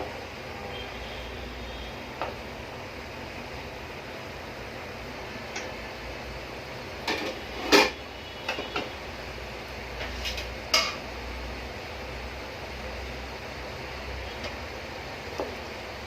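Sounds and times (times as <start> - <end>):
steady hiss of frying: 0.0 - 16.0
utensil scraping a pan: 10.0 - 11.0.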